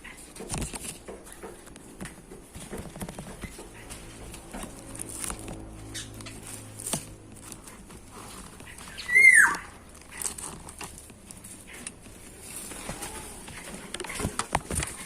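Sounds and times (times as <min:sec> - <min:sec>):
faint rustling: 0:00.0 - 0:15.0
bird call falling in pitch: 0:09.0 - 0:09.7.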